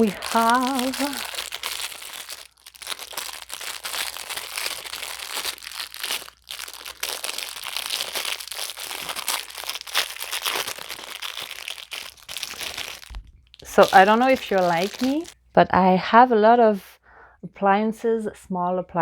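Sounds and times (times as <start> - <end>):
plastic packaging crinkling: 0.0 - 15.4.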